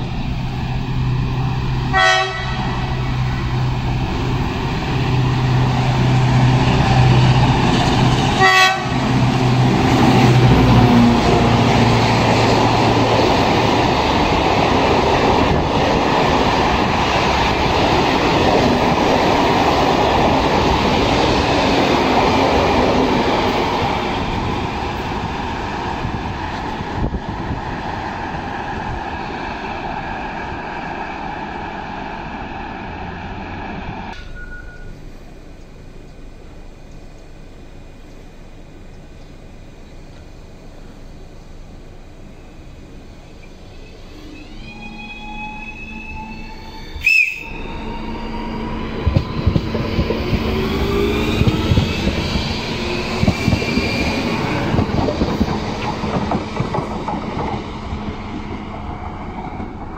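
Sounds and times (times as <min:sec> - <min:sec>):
locomotive engine droning: 0:00.0 - 0:59.9
train horn blast: 0:01.9 - 0:03.0, 0:08.4 - 0:09.2, 0:44.2 - 0:47.9
train wheels clattering on rails: 0:48.9 - 0:59.9.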